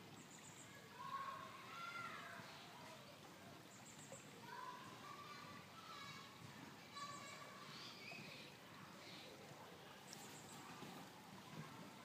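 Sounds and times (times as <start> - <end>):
faint tonal bird calls: 6.9 - 9.4, 10.0 - 11.1
faint high bird chirps: 7.0 - 8.5.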